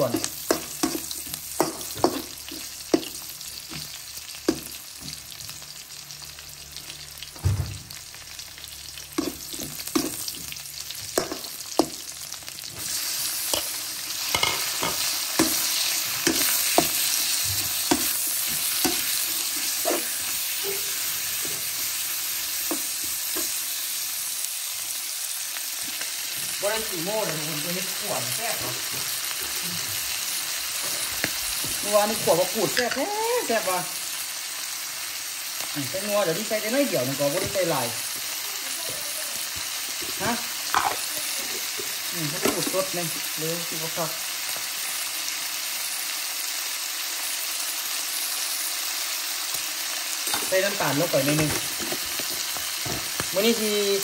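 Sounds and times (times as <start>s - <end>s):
oil sizzling: 0.0s - 54.0s
spatula scraping and tapping pan: 13.5s - 20.4s.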